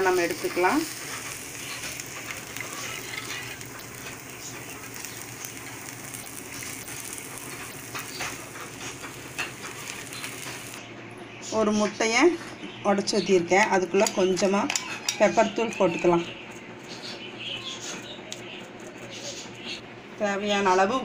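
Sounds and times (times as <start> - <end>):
dosa sizzling in oil: 0.0 - 10.8
spatula scraping a pan: 0.4 - 10.8.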